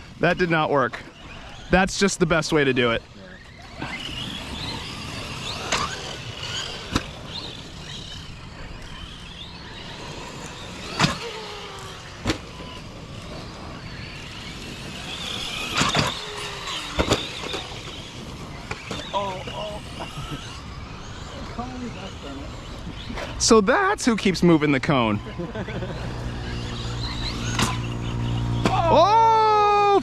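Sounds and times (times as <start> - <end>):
electric motors whining: 0.0 - 30.0.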